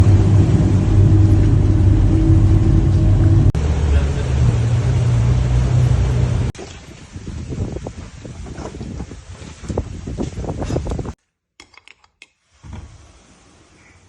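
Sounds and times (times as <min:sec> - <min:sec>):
engine droning hum: 0:00.0 - 0:06.6.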